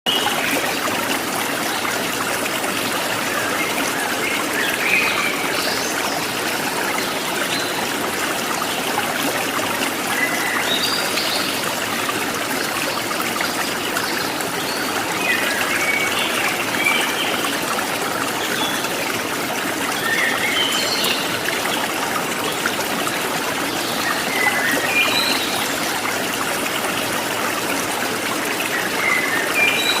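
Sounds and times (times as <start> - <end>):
running water trickling: 0.1 - 30.0.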